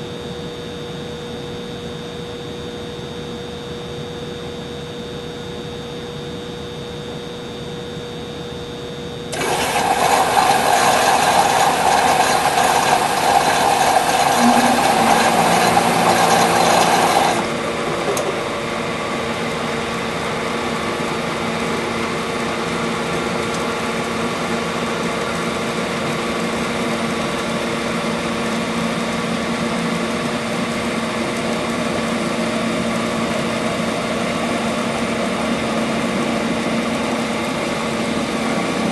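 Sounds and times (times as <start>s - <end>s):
motor hum with whine: 0.0s - 38.9s
humidifier rushing noise: 9.3s - 19.8s.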